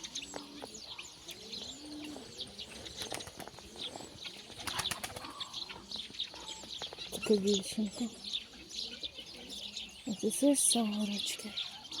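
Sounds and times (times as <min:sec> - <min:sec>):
low cooing bird calls: 0:00.0 - 0:12.0
high bird chirps and ticks: 0:06.0 - 0:08.4.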